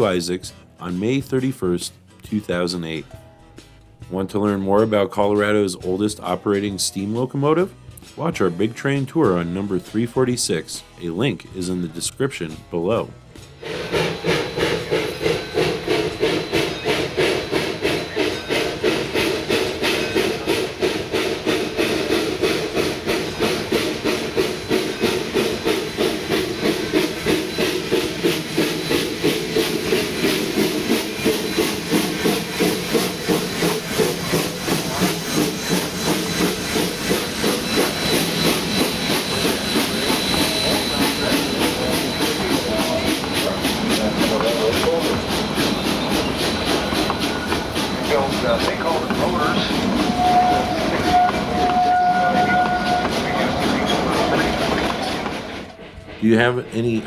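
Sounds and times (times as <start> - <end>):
steam locomotive chuffing: 0.0 - 1.9, 12.7 - 57.0
steam hiss: 13.6 - 56.0.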